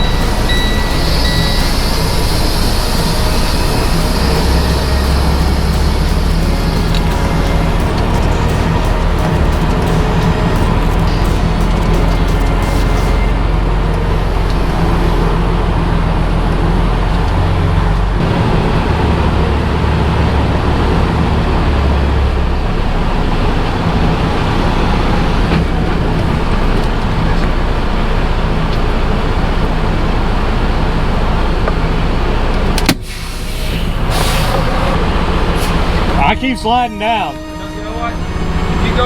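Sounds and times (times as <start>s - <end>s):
diesel truck engine revving: 0.0s - 39.0s.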